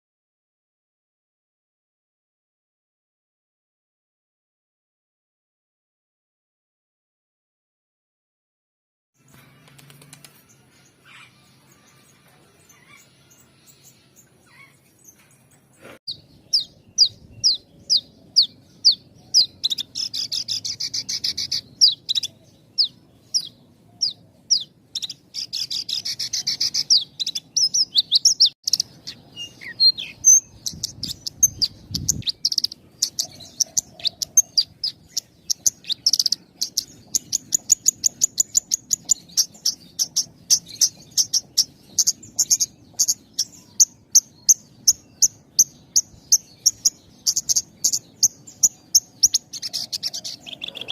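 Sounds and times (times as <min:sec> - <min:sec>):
lark singing high chirps: 0:16.1 - 0:50.9.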